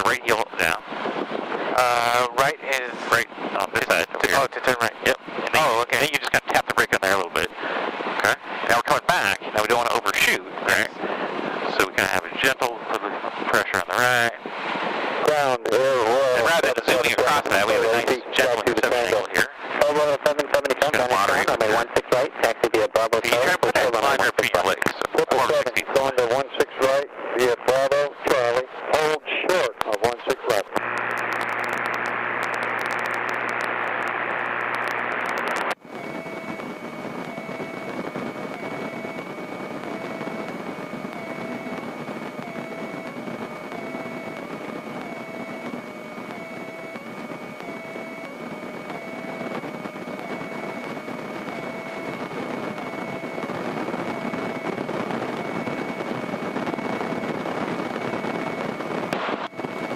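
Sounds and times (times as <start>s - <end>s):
airplane engine drone: 0.0s - 13.5s, 35.8s - 59.9s
high whine: 0.0s - 59.9s
faint pulsing tone: 35.8s - 59.9s.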